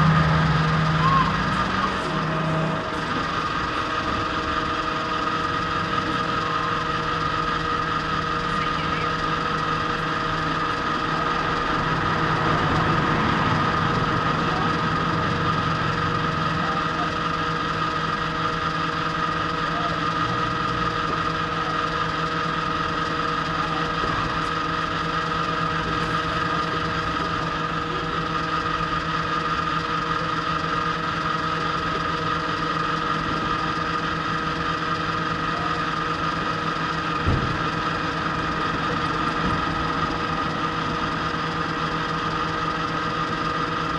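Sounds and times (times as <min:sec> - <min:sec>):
constant high tone: 0:00.0 - 0:11.9
motorcycle engine idling: 0:00.0 - 0:43.9.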